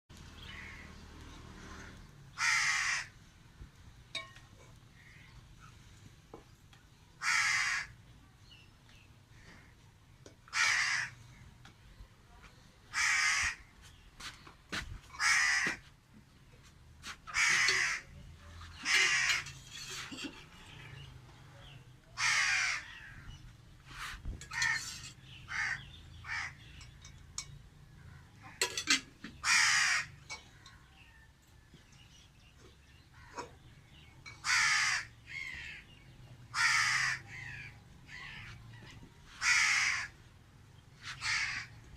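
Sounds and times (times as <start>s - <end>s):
crow cawing: 1.8s - 3.2s, 7.2s - 8.0s, 10.5s - 11.2s, 12.9s - 13.7s, 15.2s - 15.9s, 17.3s - 18.1s, 18.8s - 19.5s, 22.2s - 23.3s, 25.5s - 26.7s, 29.4s - 30.3s, 34.3s - 38.6s, 39.4s - 40.2s, 41.1s - 41.8s.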